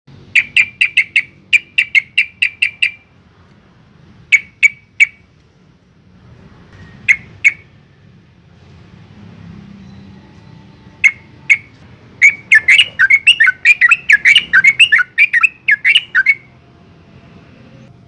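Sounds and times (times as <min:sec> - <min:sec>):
bulbul chattering call: 0:00.4 - 0:03.0, 0:11.0 - 0:16.4.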